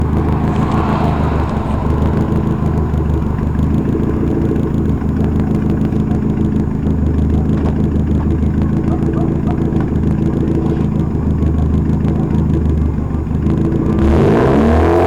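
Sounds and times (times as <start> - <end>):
car engine idling: 0.0 - 7.2.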